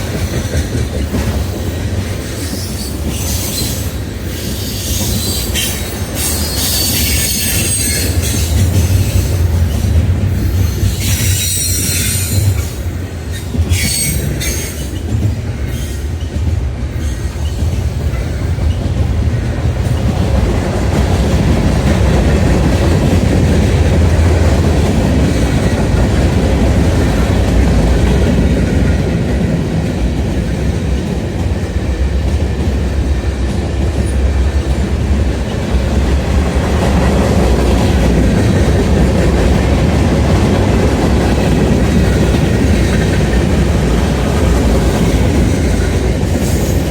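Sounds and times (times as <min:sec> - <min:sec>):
train wheel squeal: 0:00.0 - 0:19.0, 0:44.0 - 0:46.9
rumble of passing train: 0:00.0 - 0:46.9.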